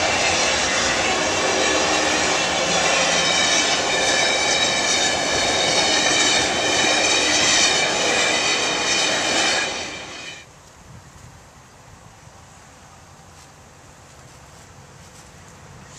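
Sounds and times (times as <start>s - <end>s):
train passing with high whine: 0.0s - 10.5s.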